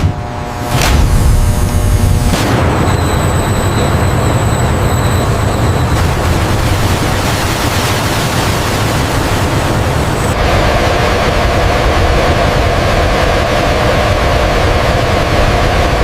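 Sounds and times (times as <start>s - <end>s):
loud low rumble: 0.0s - 16.0s
faint high whistling tones: 2.8s - 6.0s.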